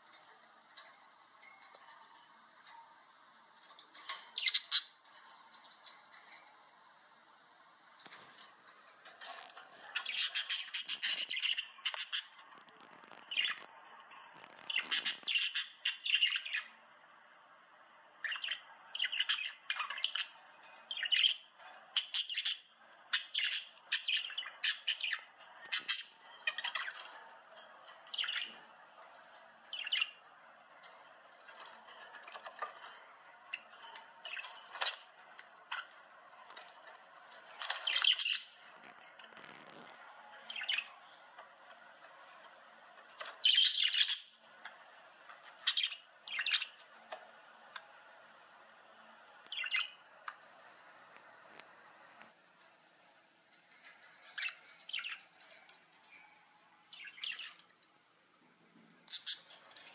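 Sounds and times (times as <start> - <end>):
bird chirping and squawking: 4.1 - 5.0, 9.2 - 16.8, 18.2 - 30.3, 30.9 - 36.7, 37.5 - 41.1, 43.1 - 44.4, 45.4 - 46.9, 49.5 - 50.0, 54.2 - 55.6, 56.9 - 57.7, 59.0 - 59.9.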